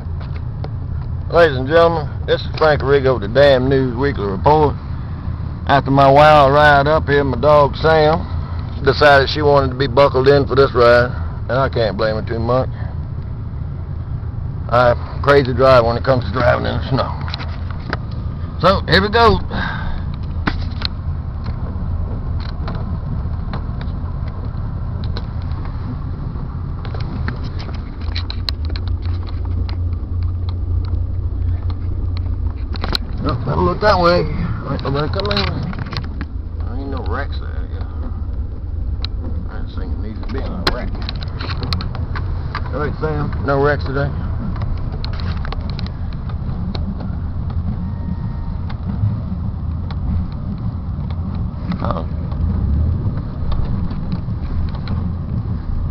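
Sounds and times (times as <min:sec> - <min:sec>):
car interior engine and tyre rumble: 0:00.0 - 0:55.9
light clicks and ticks: 0:20.0 - 0:26.1, 0:26.7 - 0:34.0, 0:34.6 - 0:47.8, 0:48.6 - 0:55.8.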